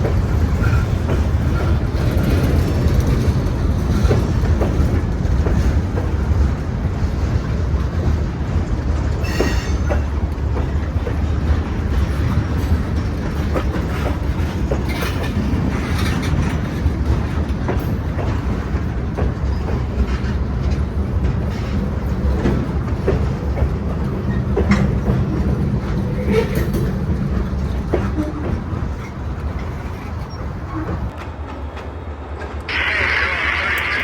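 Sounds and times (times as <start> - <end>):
freight train rolling past: 0.0 - 34.0
wheels clicking and clanking: 8.0 - 31.2.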